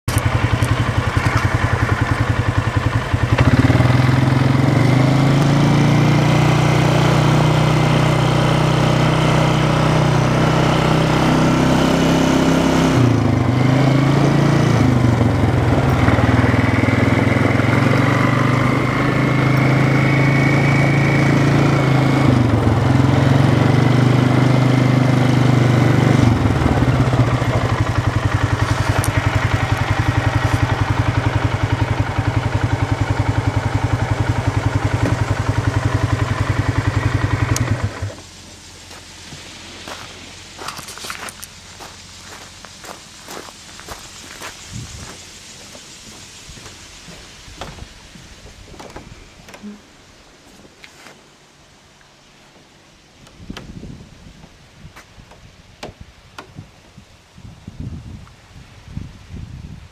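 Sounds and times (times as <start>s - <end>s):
engine running: 0.0s - 56.7s.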